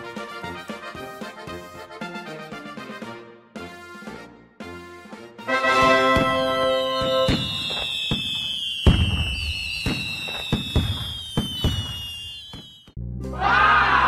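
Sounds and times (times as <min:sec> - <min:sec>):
fireworks whistling: 0:05.5 - 0:13.0
fireworks bangs and pops: 0:05.6 - 0:13.0.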